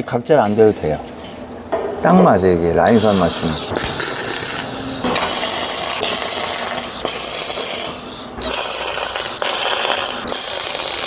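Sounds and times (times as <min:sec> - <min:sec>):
welding arc crackling: 0:02.9 - 0:11.0.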